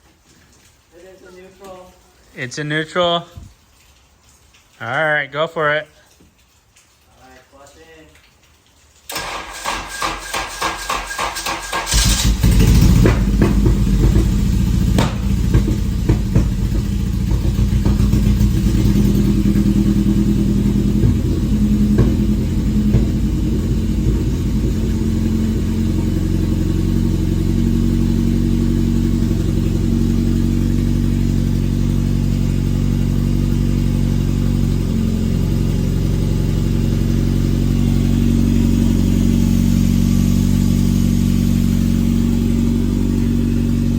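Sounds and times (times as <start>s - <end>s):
starter cranking: 9.1s - 26.0s
engine idling loudly with pops: 9.1s - 43.9s.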